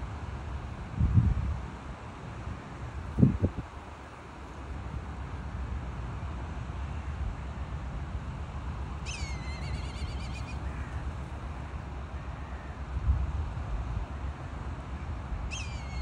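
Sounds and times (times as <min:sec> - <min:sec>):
wind rumble on microphone: 0:00.0 - 0:04.1, 0:12.8 - 0:16.0
bird call with wavering trill: 0:09.0 - 0:10.9, 0:15.5 - 0:16.0.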